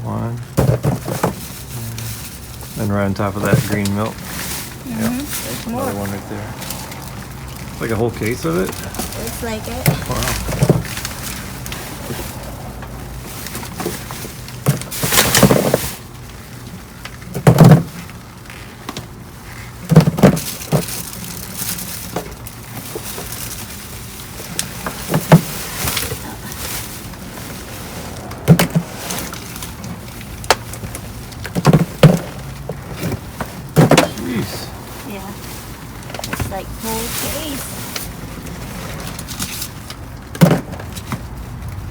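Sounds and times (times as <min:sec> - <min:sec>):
trash rustling and clattering: 0:00.1 - 0:41.9
knocks and clunks in a dumpster: 0:00.6 - 0:01.5, 0:17.4 - 0:18.0, 0:40.3 - 0:41.2.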